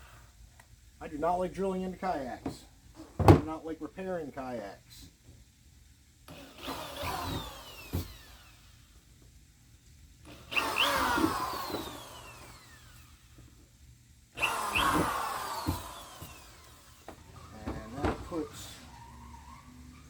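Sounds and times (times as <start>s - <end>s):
power drill boring through plastic: 6.3s - 9.0s, 10.2s - 13.4s, 14.3s - 19.0s.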